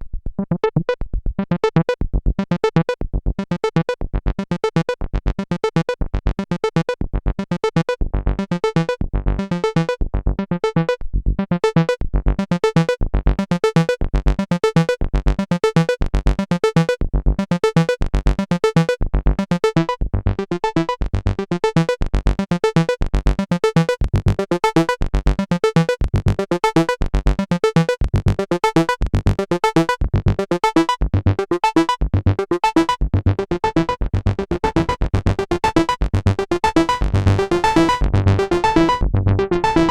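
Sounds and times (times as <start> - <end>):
synthesizer sequenced pattern: 0.4 - 39.9
deep synth bass note: 33.1 - 39.9.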